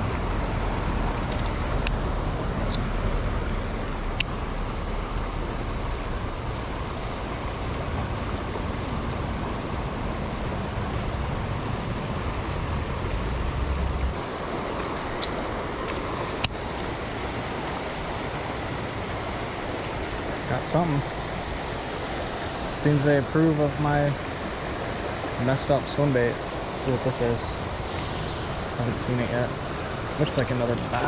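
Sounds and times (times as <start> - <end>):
sharp ticks: 0.0 - 3.2, 4.0 - 4.4
river current rushing: 0.0 - 31.0.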